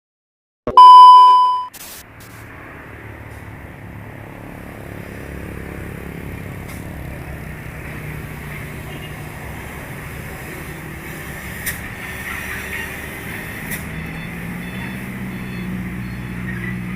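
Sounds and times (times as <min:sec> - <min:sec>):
loud ding tone: 0:00.7 - 0:01.7
heavy truck rumbling: 0:02.1 - 0:16.9.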